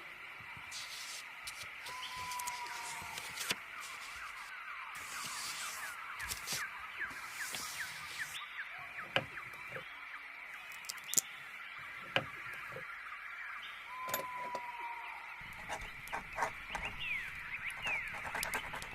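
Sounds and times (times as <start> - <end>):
small birds chirping: 0.1 - 18.9
long falling whistle: 13.9 - 15.2.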